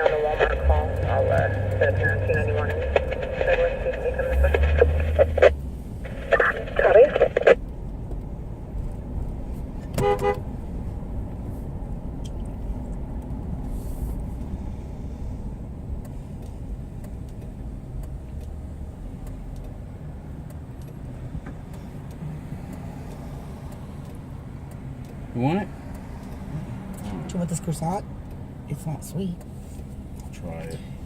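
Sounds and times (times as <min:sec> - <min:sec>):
vehicle engine rumbling: 0:00.0 - 0:31.0.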